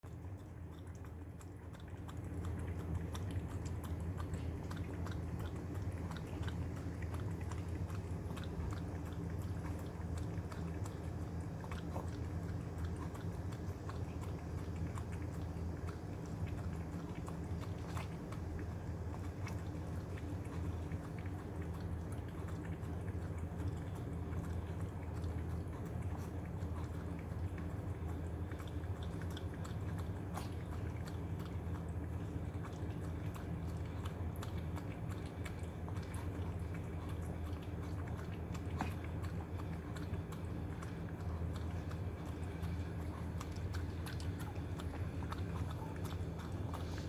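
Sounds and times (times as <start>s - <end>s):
dog licking and chewing: 0.0s - 47.0s
steady low hum: 0.0s - 47.0s.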